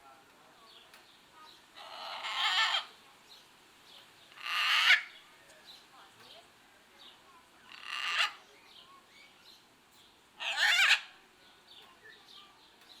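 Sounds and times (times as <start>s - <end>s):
parrot squawking harshly: 1.8s - 3.0s, 4.4s - 5.1s, 7.7s - 8.4s, 10.4s - 11.1s.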